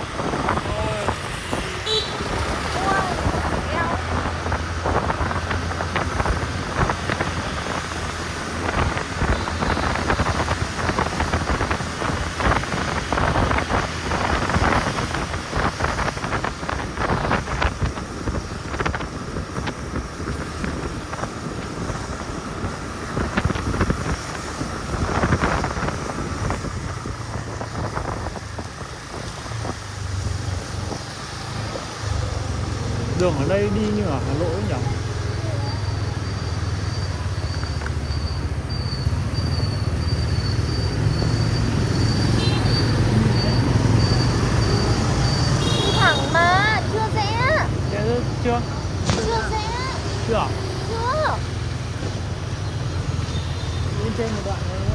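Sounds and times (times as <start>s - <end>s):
motorbike engine hum: 0.0s - 54.9s
wind buffeting microphone: 0.0s - 54.9s.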